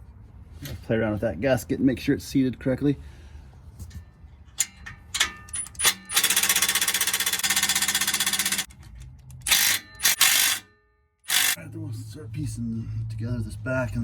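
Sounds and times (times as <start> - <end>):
metallic knocks of tools: 4.6 - 6.4
impact wrench hammering: 4.6 - 8.7, 9.5 - 10.7, 11.3 - 11.6.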